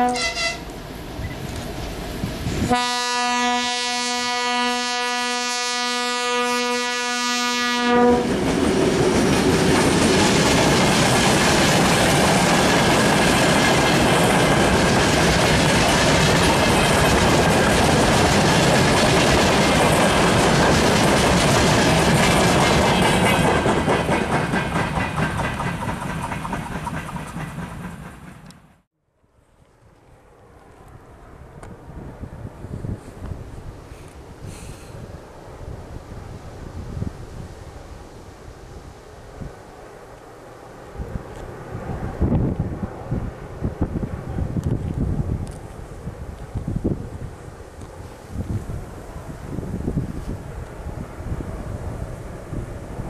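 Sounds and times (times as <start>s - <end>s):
train horn blast: 0.0s - 0.7s, 2.7s - 8.4s
train wheels clattering over rails: 8.2s - 28.8s.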